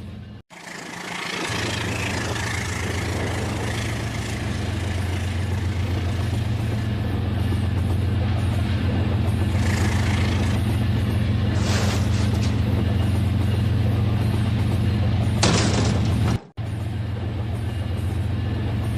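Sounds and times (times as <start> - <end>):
toy train motor hum: 9.5 - 10.8.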